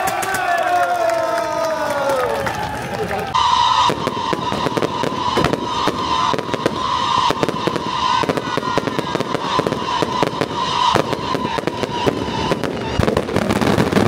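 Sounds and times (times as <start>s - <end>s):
firecrackers banging: 0.0s - 14.0s.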